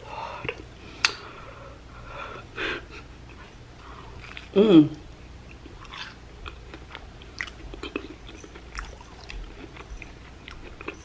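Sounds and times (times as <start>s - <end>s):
crunchy food chewing: 3.2s - 4.6s, 5.4s - 11.0s.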